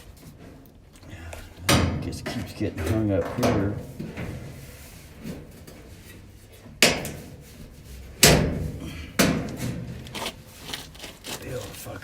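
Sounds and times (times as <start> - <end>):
dryer parts knocking into place: 1.6 - 4.6, 8.2 - 10.1.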